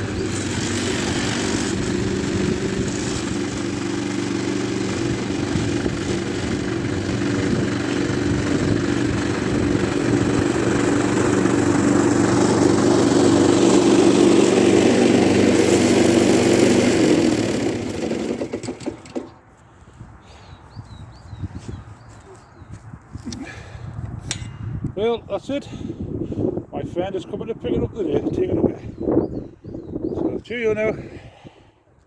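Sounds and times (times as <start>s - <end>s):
ride-on lawn mower engine running: 0.0s - 19.5s.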